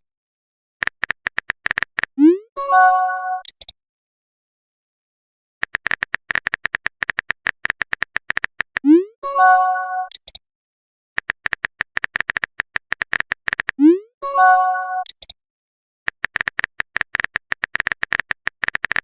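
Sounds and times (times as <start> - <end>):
phone keyboard taps: 5.6 - 8.8, 11.2 - 13.8.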